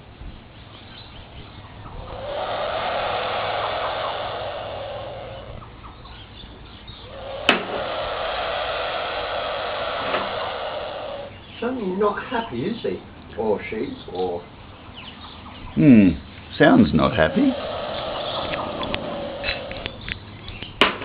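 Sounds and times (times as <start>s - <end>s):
bird hissing: 1.8s - 5.8s, 6.9s - 11.6s, 17.0s - 20.1s.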